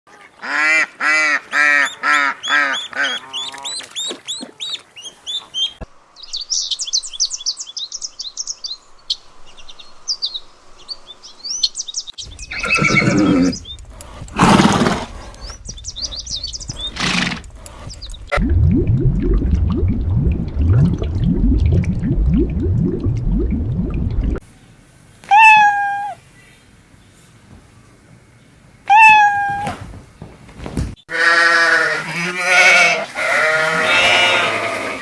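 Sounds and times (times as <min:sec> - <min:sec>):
birds chirping: 0:01.6 - 0:18.3
harsh animal calls: 0:12.3 - 0:18.3, 0:31.1 - 0:35.0
horse whinnying: 0:12.5 - 0:13.6, 0:14.4 - 0:15.1, 0:31.1 - 0:35.0.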